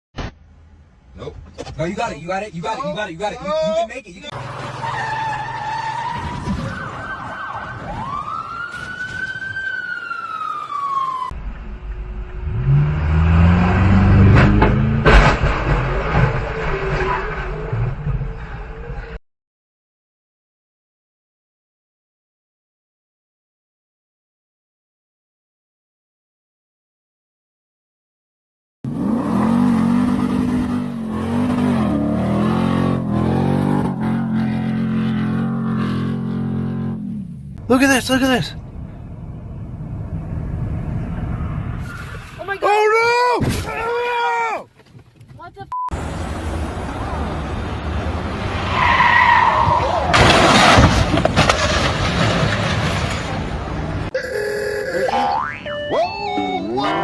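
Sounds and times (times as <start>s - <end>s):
emergency vehicle siren: 4.8s - 11.4s
car engine revving: 11.6s - 19.0s, 28.9s - 37.6s.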